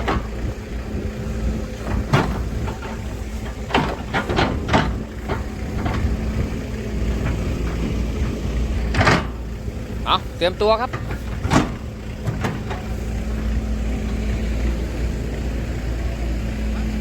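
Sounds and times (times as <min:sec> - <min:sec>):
excavator diesel engine running: 0:00.0 - 0:17.0
sharp metal knocks and clanks: 0:01.8 - 0:09.5, 0:10.7 - 0:13.0.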